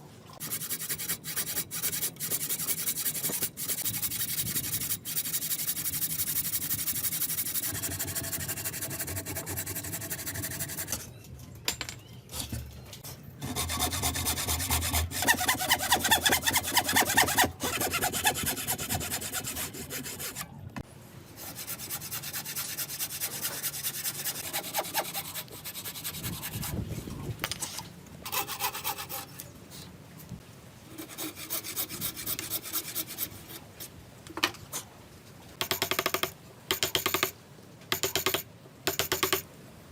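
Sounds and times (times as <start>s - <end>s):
hand tools cutting and scraping wood: 0.4s - 11.2s, 12.3s - 20.5s, 21.4s - 29.5s, 30.9s - 33.9s.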